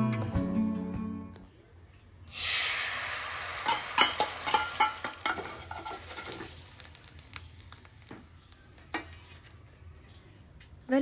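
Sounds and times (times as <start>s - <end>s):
egg sizzling in frying pan: 2.3s - 9.9s
utensils scraping a pan: 3.7s - 6.5s.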